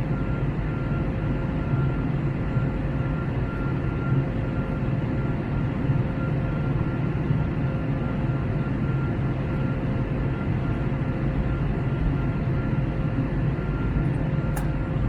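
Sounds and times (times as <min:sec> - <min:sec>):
aircraft cabin engine rumble: 0:00.0 - 0:15.0
short click: 0:14.5 - 0:14.8.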